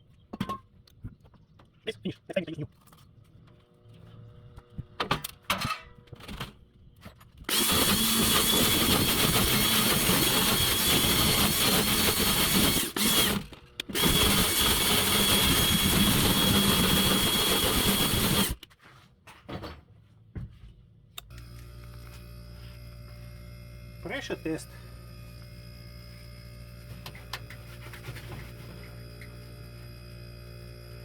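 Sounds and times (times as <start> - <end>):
power tool motor whining: 7.4 - 18.6, 21.2 - 31.0.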